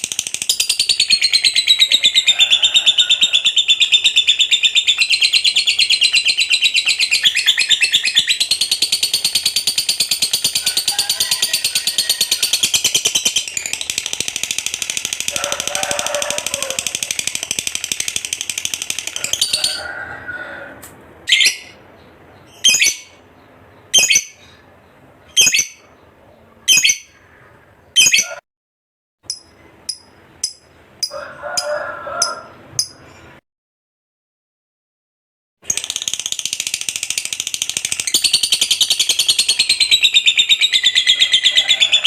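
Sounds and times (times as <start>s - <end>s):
lovebird chattering trill: 0.0s - 19.8s, 22.4s - 23.2s, 23.8s - 24.5s, 25.3s - 26.0s, 26.6s - 27.3s, 28.0s - 28.4s, 29.3s - 31.2s, 35.7s - 42.0s
bird sharp chirps: 3.6s - 15.0s, 23.8s - 24.7s, 26.7s - 27.3s.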